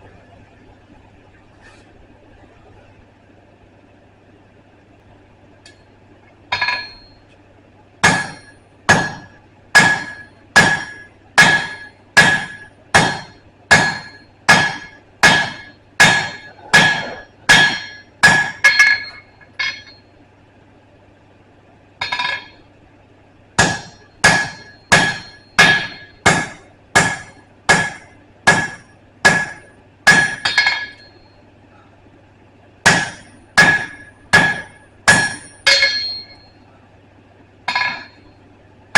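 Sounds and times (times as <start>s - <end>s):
hammer striking steel on anvil: 6.5s - 7.2s, 8.0s - 20.0s, 22.0s - 22.6s, 23.6s - 31.4s, 32.8s - 36.6s, 37.7s - 38.3s.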